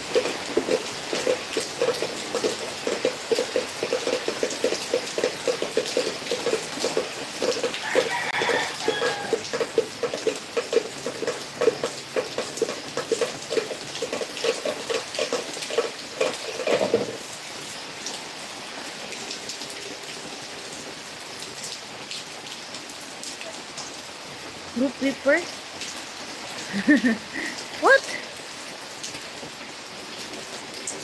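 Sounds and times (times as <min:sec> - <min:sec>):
heavy rain pattering: 0:00.0 - 0:31.0.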